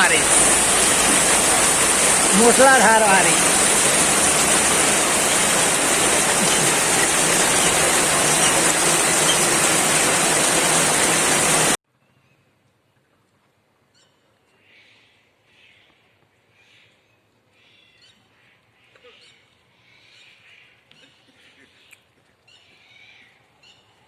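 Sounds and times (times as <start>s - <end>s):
heavy rain: 0.0s - 11.8s.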